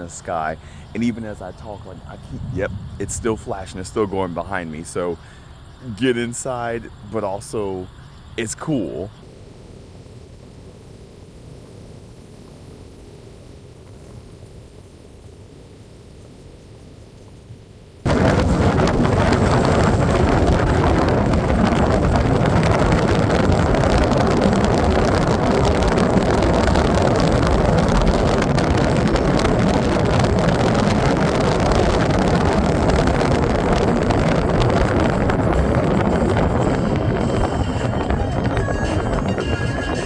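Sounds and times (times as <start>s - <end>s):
heavy rain pouring: 18.1s - 40.0s.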